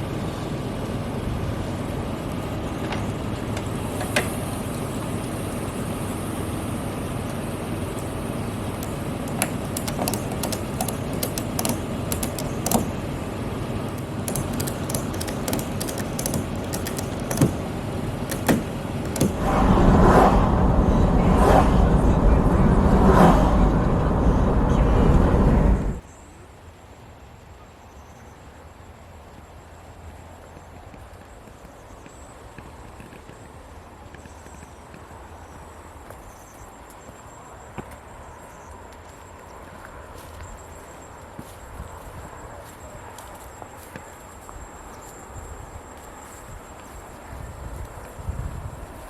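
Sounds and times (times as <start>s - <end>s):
vehicle driving rumble: 0.0s - 26.0s
clicks and knocks: 8.7s - 13.2s, 13.9s - 19.5s.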